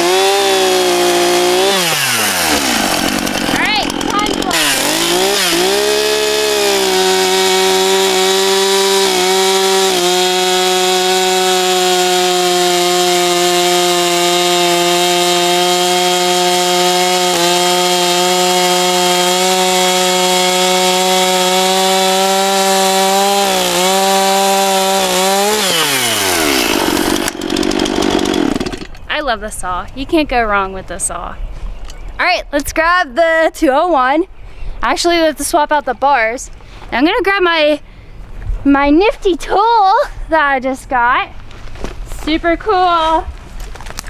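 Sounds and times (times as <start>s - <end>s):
chainsaw cutting through log: 0.0s - 29.0s.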